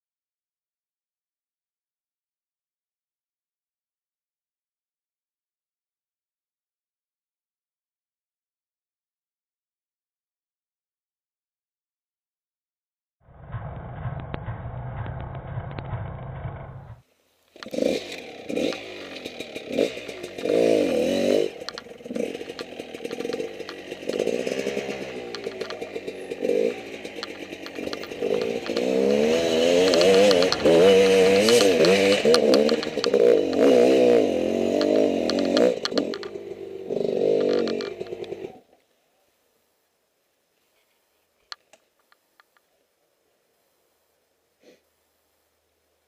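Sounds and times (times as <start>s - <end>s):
motorcycle engine revving: 13.3s - 17.0s, 17.6s - 38.7s.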